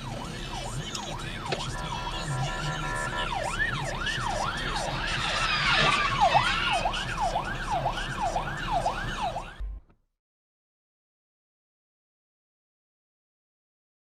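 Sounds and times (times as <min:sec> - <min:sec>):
road noise: 0:00.0 - 0:09.8
siren yelping: 0:00.0 - 0:09.8.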